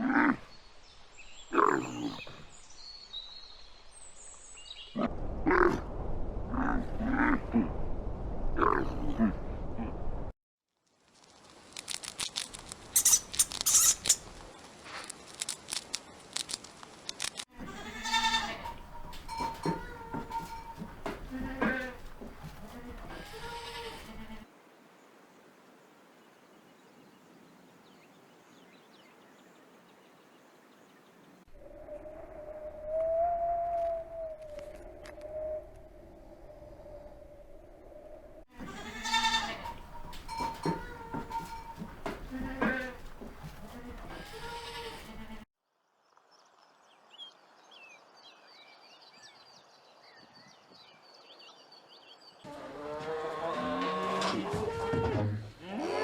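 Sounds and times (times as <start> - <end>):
light hiss: 10.8 - 17.5
goat bleating: 17.6 - 24.5, 38.6 - 45.4.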